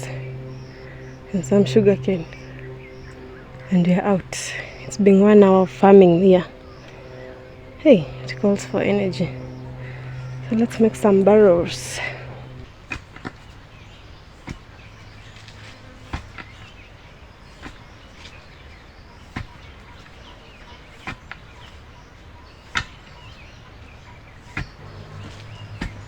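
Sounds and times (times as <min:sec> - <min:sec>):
insects chirping: 0:00.0 - 0:12.7, 0:24.6 - 0:26.0
birds chirping: 0:00.0 - 0:26.0
hoe chopping into soil: 0:14.4 - 0:16.7, 0:24.5 - 0:26.0.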